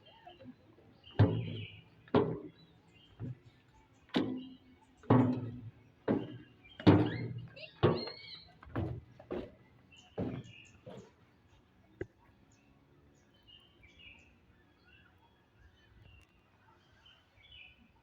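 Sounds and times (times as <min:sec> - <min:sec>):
heavy footsteps on hollow surface: 0:04.2 - 0:11.4.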